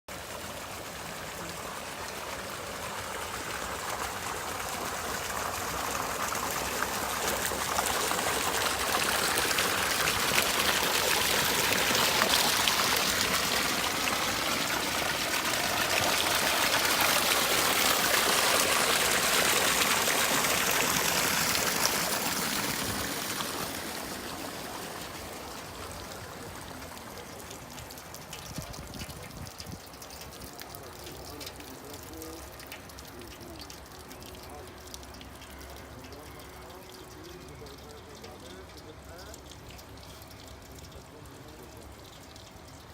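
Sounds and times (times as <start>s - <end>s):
stream water rushing: 0.1s - 27.8s.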